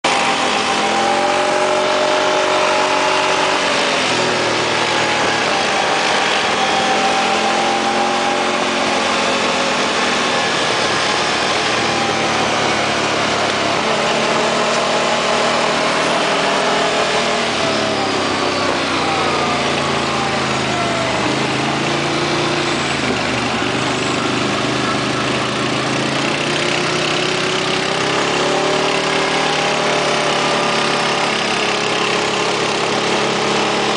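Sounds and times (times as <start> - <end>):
vehicle engine running: 0.0 - 33.9.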